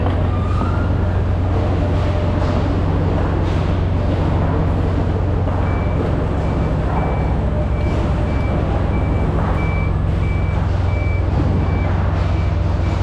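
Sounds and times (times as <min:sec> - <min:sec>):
engine humming: 0:00.0 - 0:13.0
reversing alarm beeping: 0:05.6 - 0:13.0.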